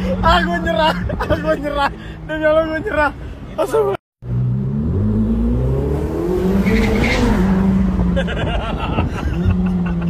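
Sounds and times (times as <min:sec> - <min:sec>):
sports car engine revving: 0:04.2 - 0:08.2.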